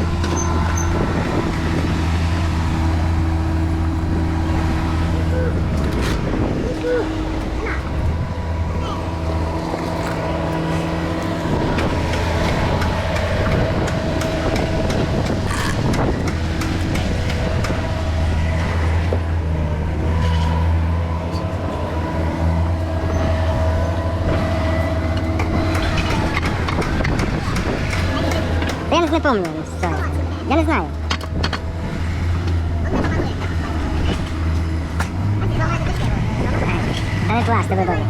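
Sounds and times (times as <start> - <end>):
large engine humming: 0.0 - 38.0
clicks and knocks of work: 8.9 - 19.2, 23.1 - 30.2, 31.0 - 35.2.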